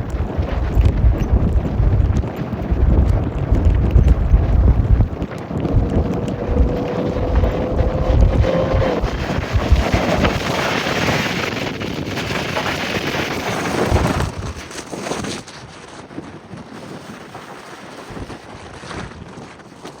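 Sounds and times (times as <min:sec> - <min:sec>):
vehicle engine rumble: 0:00.0 - 0:10.4
wind buffeting microphone: 0:00.0 - 0:20.0.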